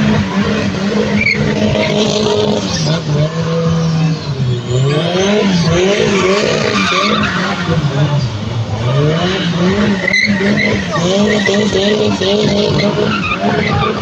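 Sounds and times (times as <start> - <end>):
engine revving: 0.0 - 14.0.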